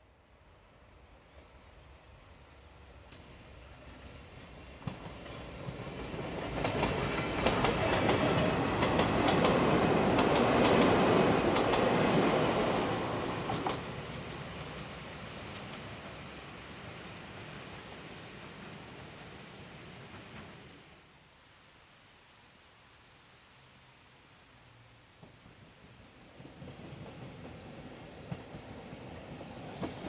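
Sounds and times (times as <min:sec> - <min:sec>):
train passing rumble: 0:00.4 - 0:21.8, 0:23.8 - 0:30.0
wheels clacking over rail joints: 0:04.0 - 0:14.8, 0:29.7 - 0:30.0.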